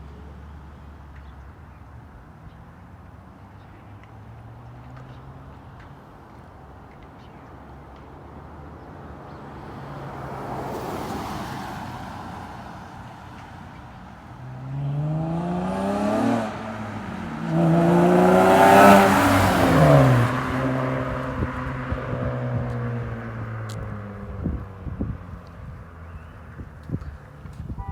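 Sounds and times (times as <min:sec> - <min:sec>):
car engine revving and idling: 0:14.4 - 0:26.1.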